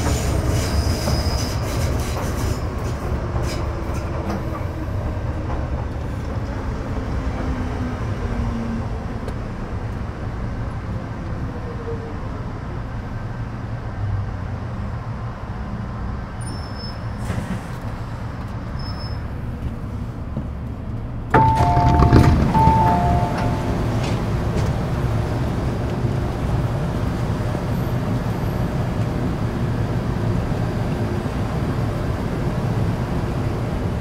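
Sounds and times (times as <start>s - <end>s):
train interior rumble: 0.0s - 34.0s
door warning chime beeping: 21.4s - 24.2s.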